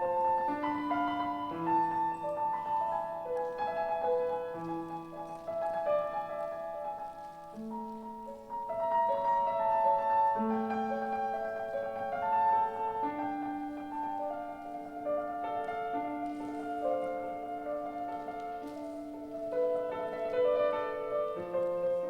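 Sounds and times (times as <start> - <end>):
slow piano chords: 0.0 - 22.0.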